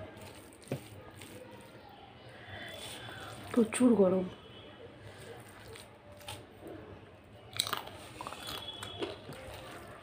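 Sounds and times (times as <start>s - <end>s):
chewing soft food: 5.1s - 6.6s, 7.4s - 10.0s.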